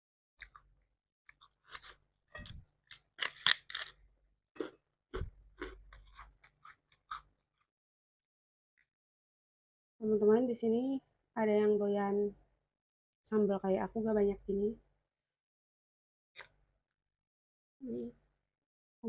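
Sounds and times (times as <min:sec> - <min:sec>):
person chewing crunchy food: 0:01.3 - 0:04.0, 0:04.6 - 0:07.4.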